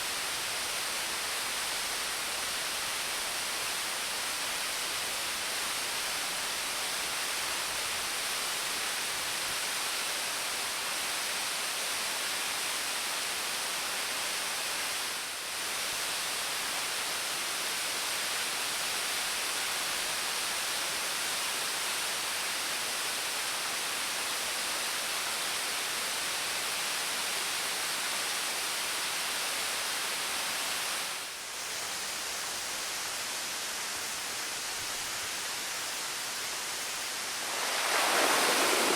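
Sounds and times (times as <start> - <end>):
waterfall rushing: 36.4 - 38.9.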